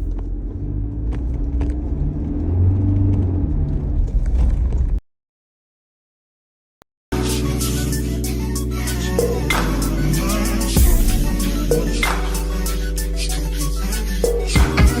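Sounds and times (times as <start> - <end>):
car engine rumbling: 0.0 - 5.0
road noise inside car: 0.0 - 5.0.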